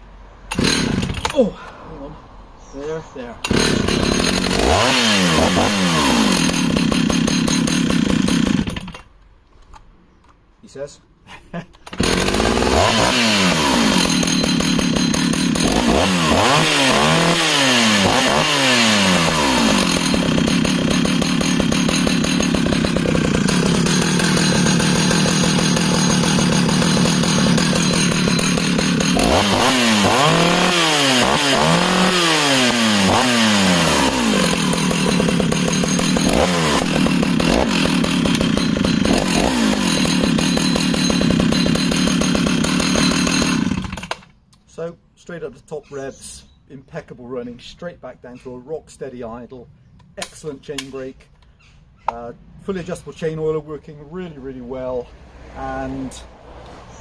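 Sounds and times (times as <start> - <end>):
chainsaw engine revving: 0.5 - 1.5, 3.4 - 9.0, 11.8 - 44.3
chainsaw idling: 0.5 - 1.5, 3.4 - 9.0, 11.9 - 44.3.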